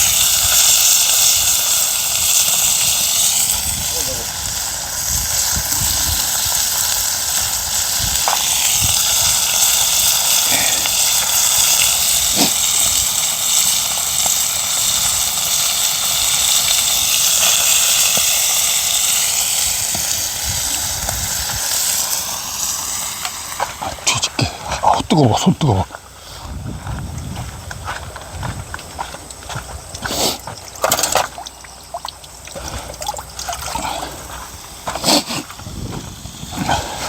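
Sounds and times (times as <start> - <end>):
fish sizzling on a griddle: 0.0 - 24.8, 25.9 - 37.0.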